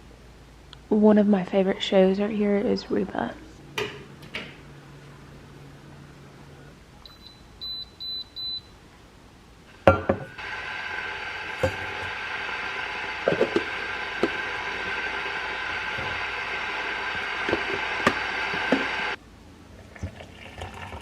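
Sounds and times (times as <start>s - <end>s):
appliance running hum: 0.0s - 8.7s, 9.6s - 21.0s
appliance clunk: 3.8s - 4.6s
keypad beeps: 7.0s - 8.7s.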